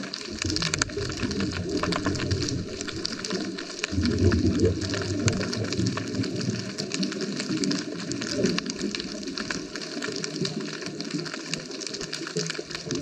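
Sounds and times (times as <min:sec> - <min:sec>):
underwater bubbling rumble: 0:00.0 - 0:13.0
underwater crackle of clicks: 0:00.0 - 0:13.0.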